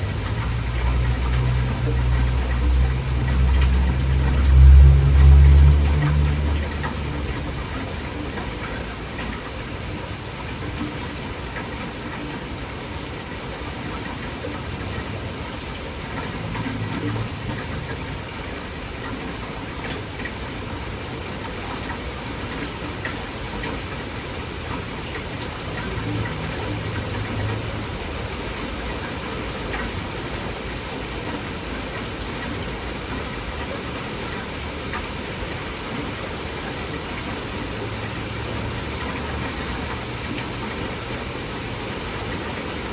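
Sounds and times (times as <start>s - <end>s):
low rumble: 0.0s - 7.9s
heavy rain falling: 0.0s - 42.9s.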